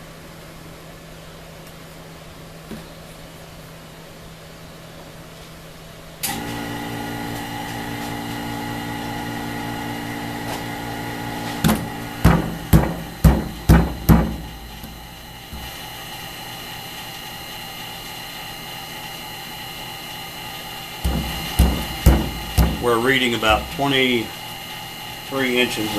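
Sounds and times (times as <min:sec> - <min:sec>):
vacuum pump humming: 0:06.2 - 0:18.5, 0:19.1 - 0:25.9
sharp knocks: 0:11.6 - 0:15.7, 0:21.1 - 0:24.0.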